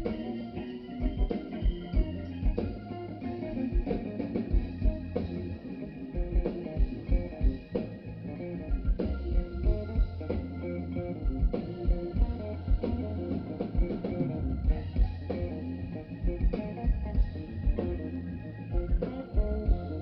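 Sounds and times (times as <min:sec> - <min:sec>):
drum-kit beat: 0:00.0 - 0:20.0
electric guitar playing: 0:00.0 - 0:20.0
held bass notes: 0:00.0 - 0:20.0.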